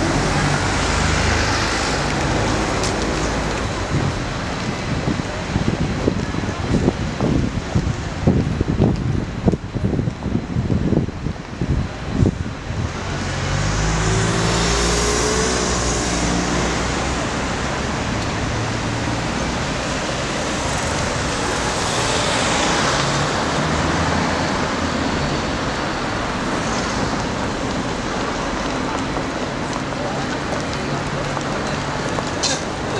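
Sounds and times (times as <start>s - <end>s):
roadway traffic noise: 0.0s - 32.9s
vehicle passing: 13.1s - 32.0s.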